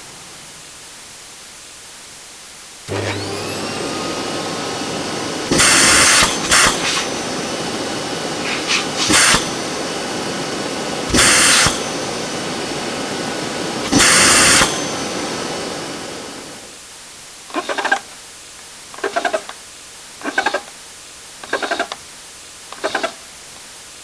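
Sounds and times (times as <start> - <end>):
vacuum cleaner running: 2.8 - 16.8
hissing surges of air: 5.4 - 14.9.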